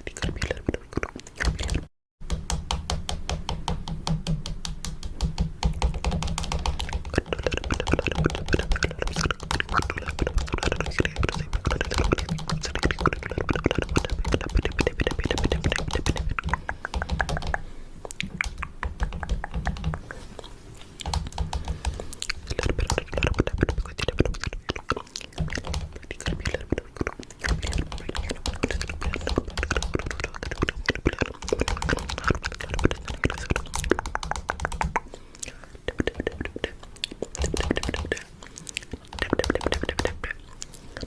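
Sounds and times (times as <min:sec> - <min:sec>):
fingernail tapping: 0:02.2 - 0:17.6.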